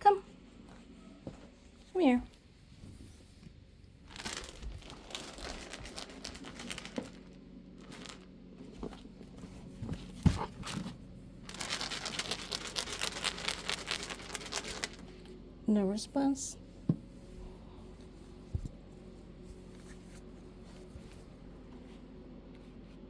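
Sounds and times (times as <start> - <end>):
crinkling rustling handling noise: 0.4 - 15.3.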